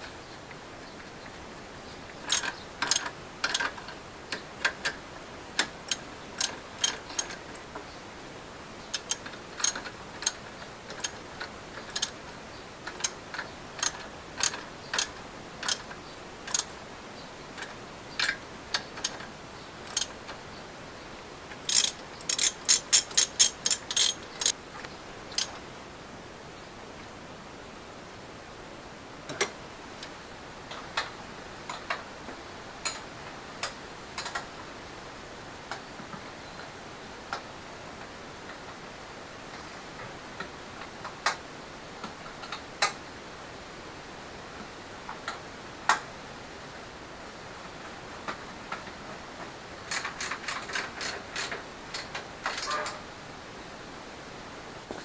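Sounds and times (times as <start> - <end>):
hand ratchet clicking: 2.3 - 5.0, 8.9 - 12.2, 12.8 - 16.8, 19.8 - 20.2, 21.6 - 24.6, 49.9 - 53.0.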